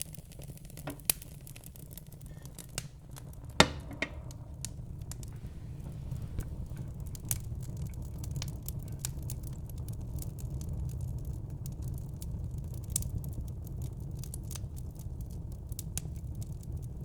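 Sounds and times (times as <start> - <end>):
fire crackling: 0.0 - 17.0
fire popping and snapping: 0.0 - 17.0
low rumble: 2.8 - 10.4.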